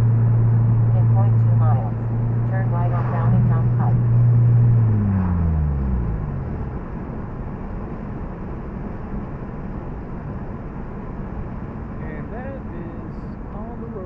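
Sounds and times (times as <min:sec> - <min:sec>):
car engine decelerating: 0:00.0 - 0:09.4.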